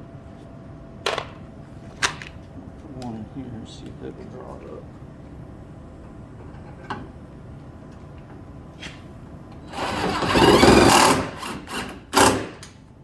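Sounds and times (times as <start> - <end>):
power drill driving a screw: 9.7 - 12.6.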